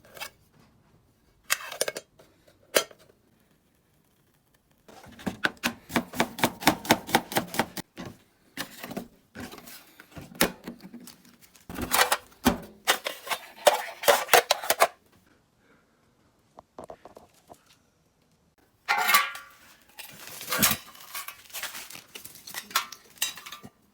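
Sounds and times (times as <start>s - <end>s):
knife chopping on cutting board: 5.9s - 7.8s.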